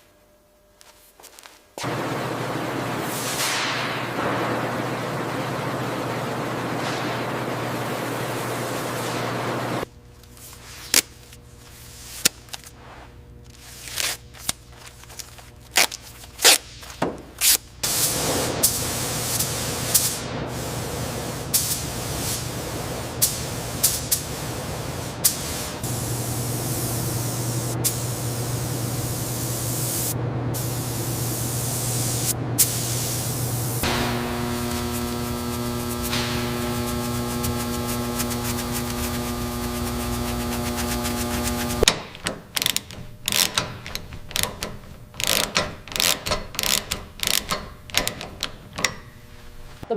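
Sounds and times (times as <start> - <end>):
spray gun hissing: 1.8 - 9.9, 17.8 - 41.9
low hum: 1.8 - 10.4, 22.6 - 41.9.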